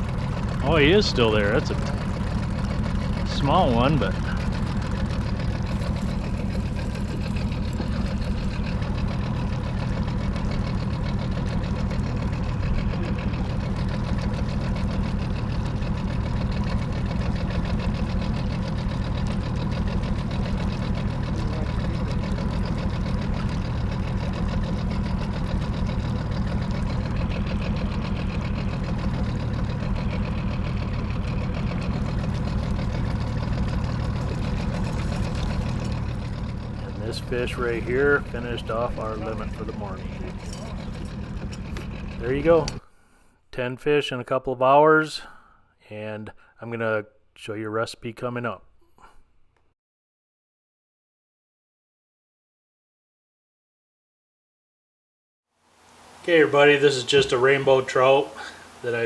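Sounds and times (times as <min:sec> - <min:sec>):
boat motor running: 0:00.0 - 0:42.8, 0:55.7 - 0:59.0.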